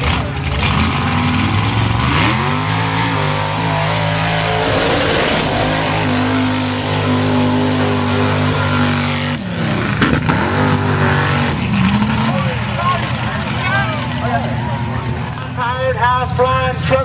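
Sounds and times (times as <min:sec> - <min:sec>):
truck engine revving: 0:00.0 - 0:15.7.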